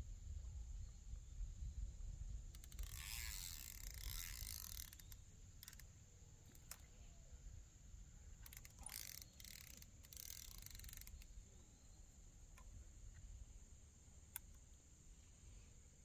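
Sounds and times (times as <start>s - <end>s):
light clicks: 2.5s - 7.0s, 14.3s - 14.8s.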